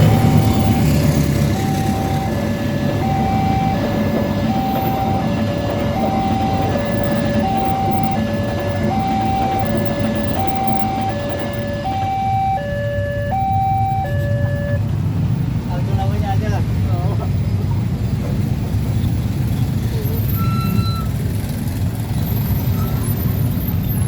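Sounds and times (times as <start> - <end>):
two-tone crossing alarm chime: 0.0 - 14.8.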